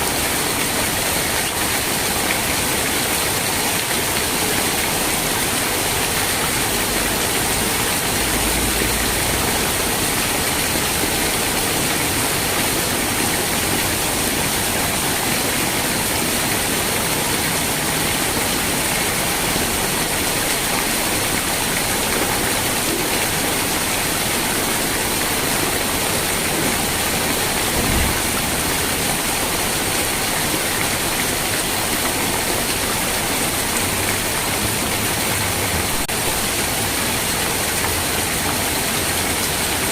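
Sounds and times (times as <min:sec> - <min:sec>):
steady rain falling: 0:00.0 - 0:39.9
low thump: 0:27.6 - 0:28.6.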